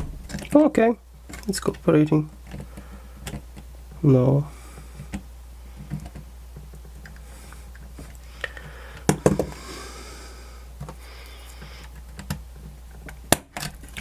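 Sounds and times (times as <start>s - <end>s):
low steady hum: 0.0s - 14.0s
small clicks and taps of parts: 2.4s - 3.7s, 5.0s - 9.6s, 11.6s - 14.0s.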